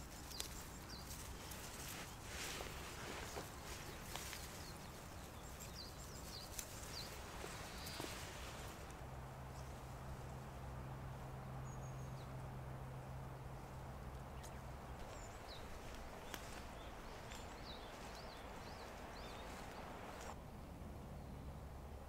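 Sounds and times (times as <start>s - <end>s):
small birds chirping: 0.0s - 20.4s
low steady hum: 0.0s - 22.0s
soft ticks: 0.2s - 1.1s.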